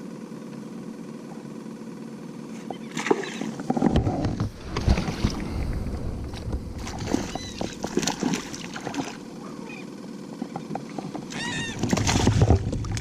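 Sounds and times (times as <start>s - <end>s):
steady low background hum: 0.0s - 13.0s
water sloshing around kayak: 2.8s - 9.8s, 10.4s - 13.0s.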